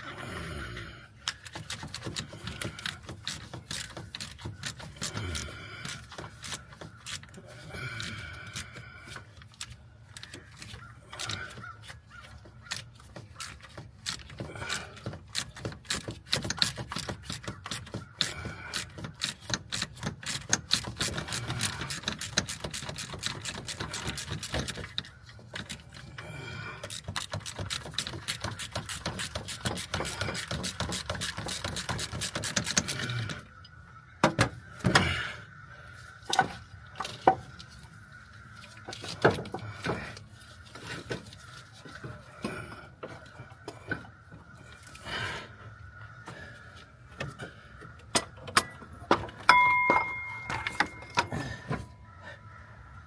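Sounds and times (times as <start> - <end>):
hand ratchet clicking: 1.2 - 11.7, 12.6 - 33.4
metal tools clinking: 49.3 - 52.0.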